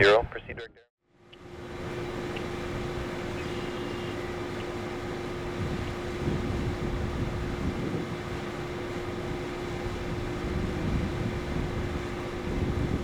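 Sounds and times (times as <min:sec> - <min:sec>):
steady mechanical hum: 0:00.0 - 0:13.0
wind rumble on microphone: 0:05.5 - 0:13.0.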